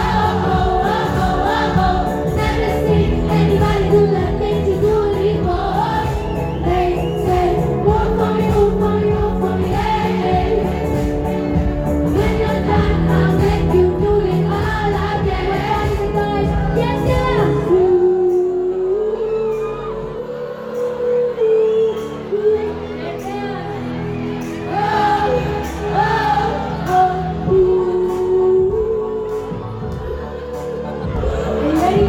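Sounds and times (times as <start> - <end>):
woman singing: 0.0 - 11.3, 12.1 - 32.0
drums: 0.0 - 18.4, 24.5 - 32.0
bass guitar: 0.0 - 18.6.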